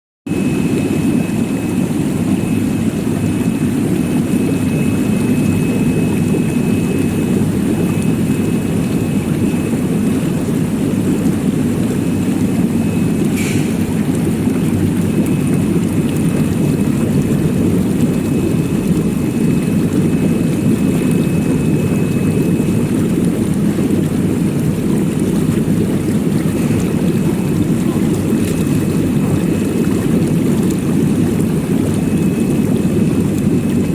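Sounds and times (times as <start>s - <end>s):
faint high whine: 0.3s - 17.2s.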